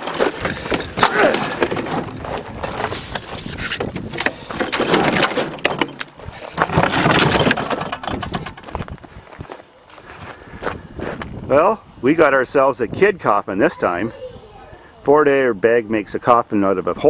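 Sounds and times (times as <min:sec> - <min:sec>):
broken plastic and metal clattering: 0:00.0 - 0:09.0
noisy scraping: 0:00.0 - 0:11.3.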